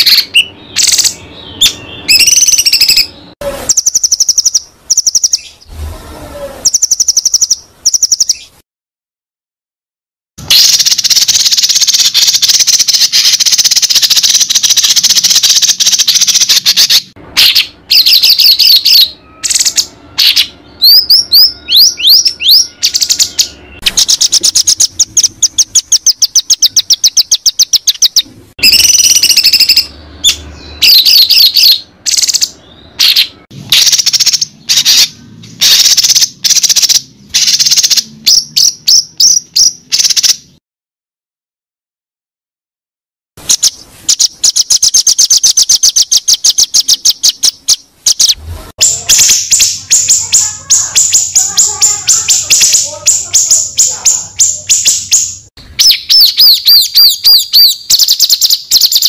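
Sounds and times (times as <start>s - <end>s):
loud varied bird song: 0.0s - 8.6s, 10.4s - 40.6s, 43.4s - 59.0s.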